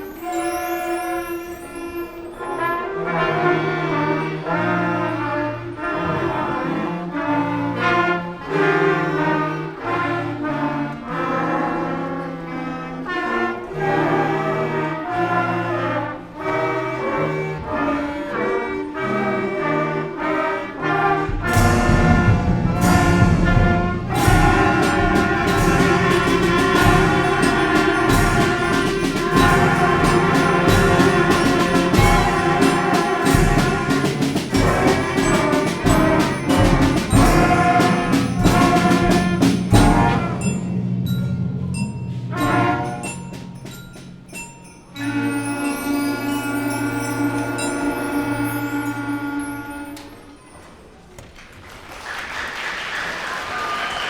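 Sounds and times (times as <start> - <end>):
concert band playing: 20.3 - 50.2
heavy percussion hits: 21.2 - 46.4.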